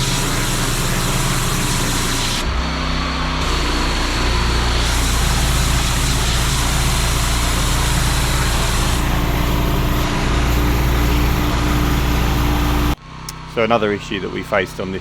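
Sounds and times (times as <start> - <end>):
high-pressure water spray hiss: 0.0 - 2.5, 3.4 - 13.0
pressure washer engine running: 0.0 - 2.6, 3.4 - 13.0.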